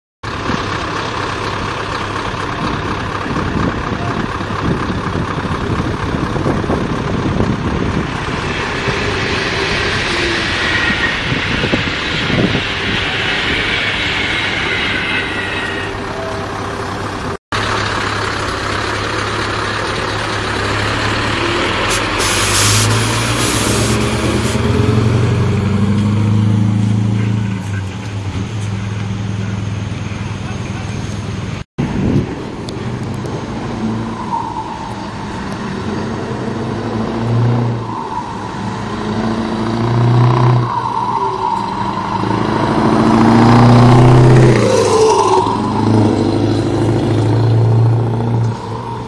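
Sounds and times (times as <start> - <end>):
diesel truck engine running: 0.2 - 49.0
air brake hisses: 21.8 - 24.7.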